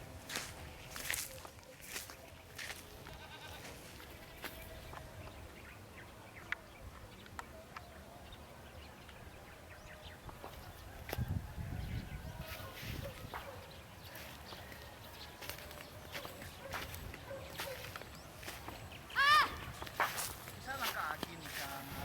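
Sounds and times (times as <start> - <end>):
goats bleating faintly: 3.0 - 3.9.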